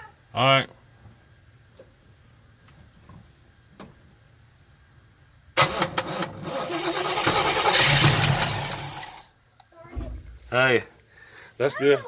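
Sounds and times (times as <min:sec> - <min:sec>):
starter motor clacking: 0:05.6 - 0:09.2
car engine starting: 0:05.6 - 0:09.3.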